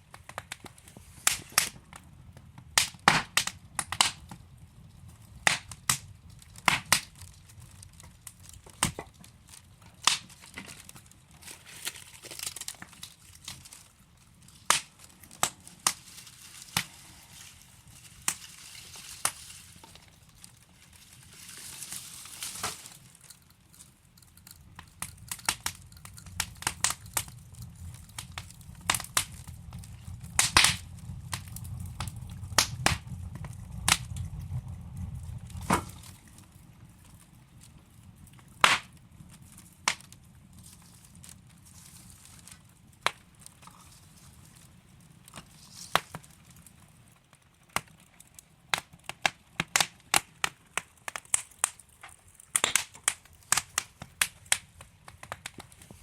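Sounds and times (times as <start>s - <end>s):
logs burning with crackles and pops: 0.0s - 56.0s
rushing swell of flame: 13.0s - 38.3s.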